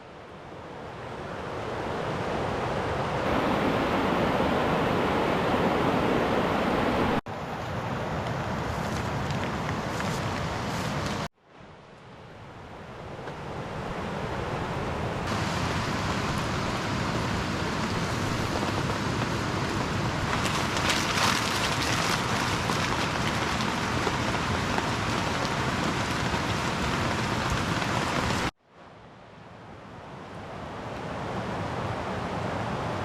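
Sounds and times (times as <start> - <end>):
heavy rain falling: 3.2 - 7.2, 15.3 - 28.5.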